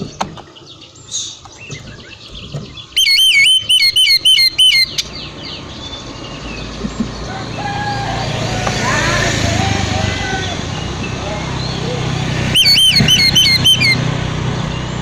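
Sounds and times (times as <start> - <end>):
bird chirping and twittering: 0.0 - 7.3, 10.6 - 14.0
bird whistling fast notes: 3.0 - 5.2, 12.5 - 14.0.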